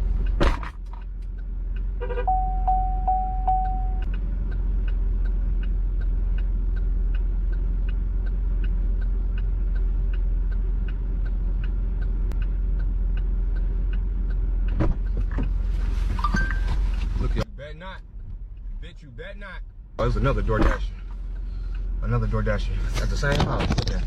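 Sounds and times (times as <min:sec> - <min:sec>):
car engine idling: 0:00.0 - 0:23.3
thump: 0:00.4 - 0:00.8.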